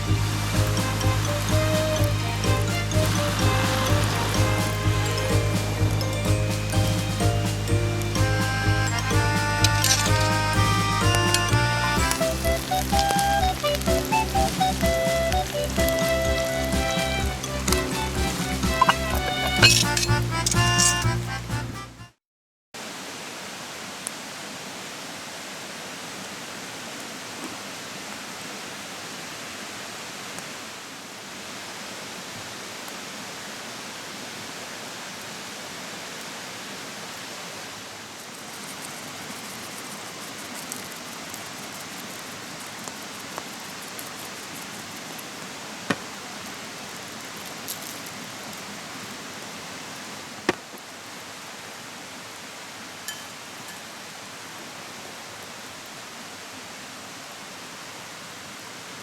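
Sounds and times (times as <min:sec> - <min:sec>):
mountain stream rushing: 0:00.0 - 0:21.8, 0:22.8 - 0:59.0
small crackles and pops: 0:12.0 - 0:17.0, 0:38.3 - 0:46.2, 0:46.9 - 0:48.7.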